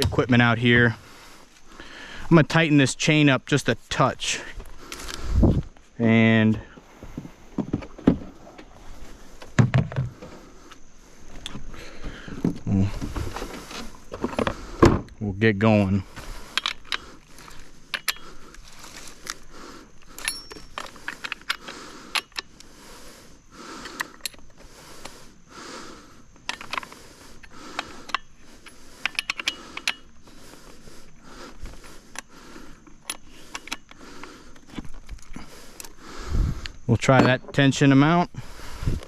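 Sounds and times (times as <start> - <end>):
metallic clicks and clinks: 17.9 - 18.5, 20.0 - 22.6, 26.4 - 30.1.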